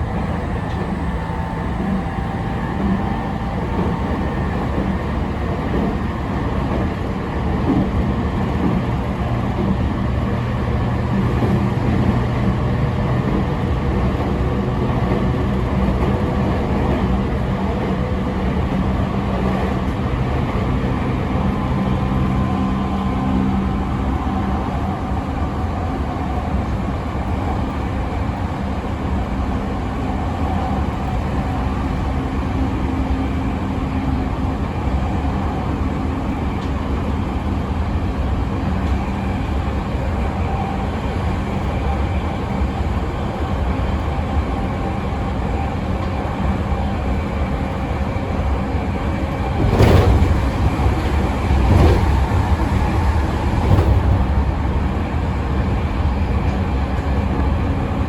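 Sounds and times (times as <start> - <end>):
train wheels rumbling on rail: 0.0 - 58.0
train running gear clattering: 47.1 - 54.5.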